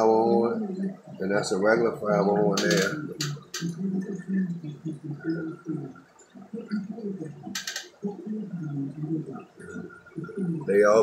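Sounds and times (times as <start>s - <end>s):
aquarium water bubbling: 0.0s - 11.0s.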